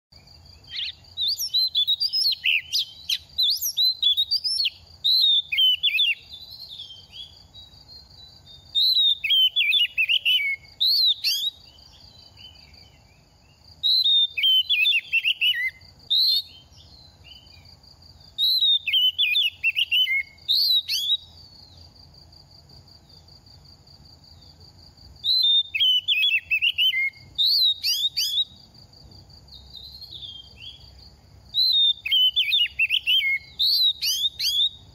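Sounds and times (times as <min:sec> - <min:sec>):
bird singing whistled phrases: 0:00.6 - 0:13.2, 0:13.8 - 0:17.7, 0:18.3 - 0:21.3, 0:25.2 - 0:28.6, 0:29.6 - 0:30.8, 0:31.5 - 0:34.9.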